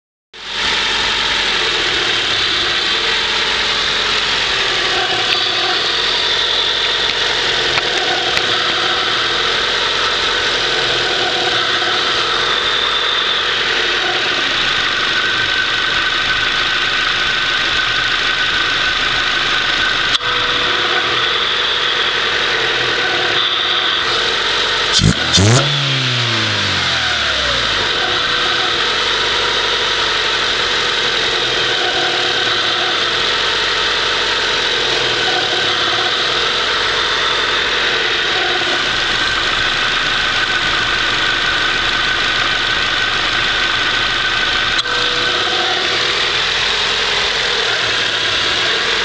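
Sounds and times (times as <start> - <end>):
car engine idling: 0.4 - 20.6, 24.1 - 32.4, 33.2 - 49.0.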